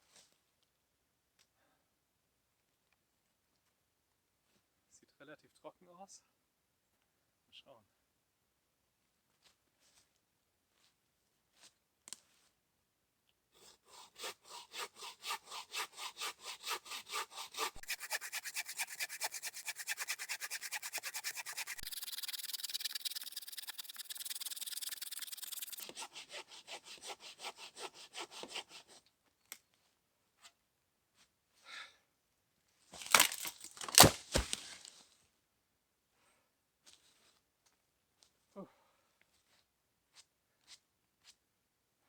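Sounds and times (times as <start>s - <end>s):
hand saw cutting wood: 13.6s - 29.0s, 33.0s - 34.6s.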